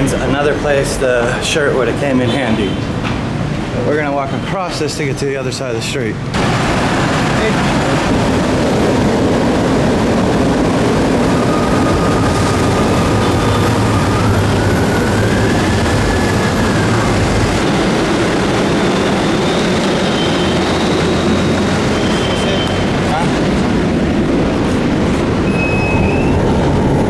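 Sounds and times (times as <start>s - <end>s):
heavy vehicle traffic rumble: 0.0s - 27.0s.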